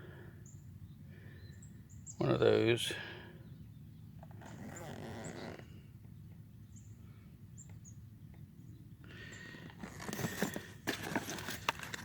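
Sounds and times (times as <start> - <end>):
faint bird chirps: 0.4 - 9.6
rustling handling noise: 9.7 - 12.0.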